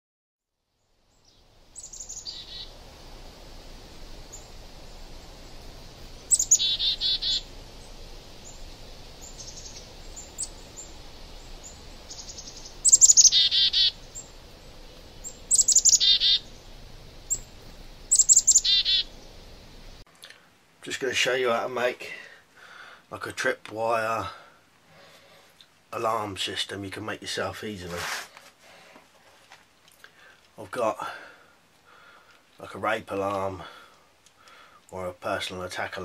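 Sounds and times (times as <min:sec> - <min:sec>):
faint steady hiss: 0:00.5 - 0:36.0
songbird singing: 0:00.7 - 0:20.4.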